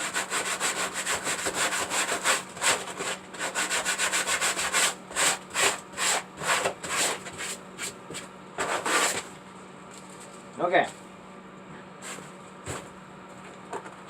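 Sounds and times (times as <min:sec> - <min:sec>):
sandpaper rubbing: 0:00.2 - 0:08.0, 0:08.6 - 0:09.2.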